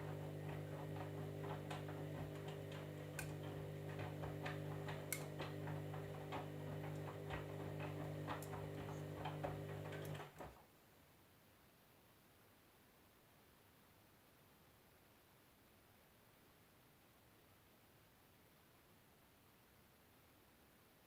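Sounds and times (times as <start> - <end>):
laundry tumbling clicks: 0.0 - 10.6
washing machine motor hum: 0.0 - 10.6.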